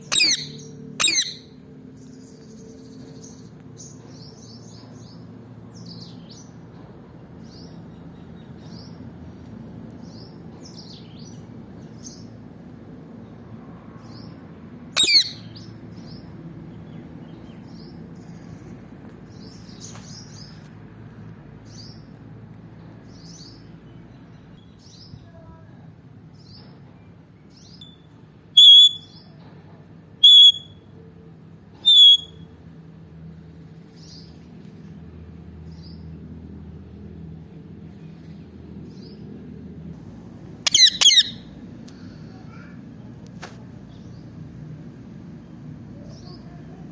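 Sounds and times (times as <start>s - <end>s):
loud parakeet calls: 0.0s - 1.6s, 15.0s - 15.7s, 28.6s - 29.2s, 30.2s - 30.7s, 31.8s - 32.4s, 40.6s - 41.6s
parakeet high chirps: 0.0s - 1.6s, 15.0s - 15.6s, 28.6s - 29.2s, 30.2s - 30.8s, 31.8s - 32.4s, 40.6s - 41.5s.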